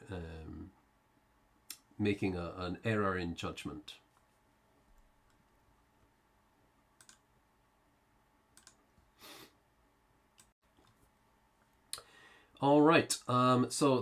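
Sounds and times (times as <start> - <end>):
faint clicks: 7.0 - 7.2, 8.6 - 8.8.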